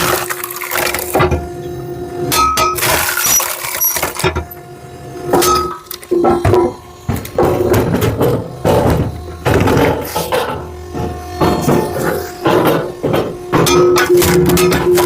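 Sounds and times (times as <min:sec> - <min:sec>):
log splitter machine hum: 0:00.0 - 0:15.0
wood pieces clattering: 0:02.8 - 0:04.4.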